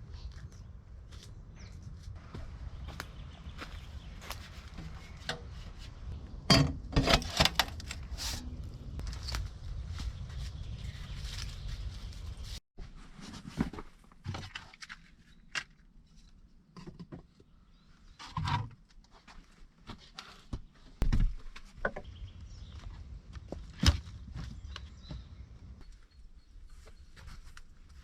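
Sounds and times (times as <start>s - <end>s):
footsteps outdoors: 0.0s - 6.4s, 7.6s - 12.6s, 18.9s - 28.0s
rustling: 7.2s - 15.2s.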